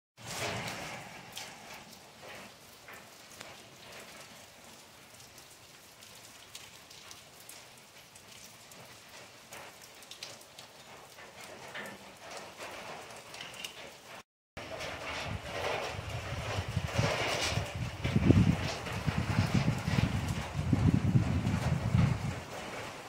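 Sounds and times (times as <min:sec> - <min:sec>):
rain on concrete: 0:00.2 - 0:23.0
single raindrop ticks: 0:00.6 - 0:12.5.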